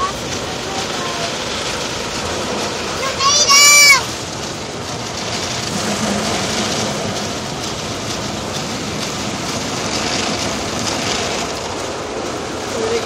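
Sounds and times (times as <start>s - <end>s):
car wash spraying water: 0.0s - 13.0s.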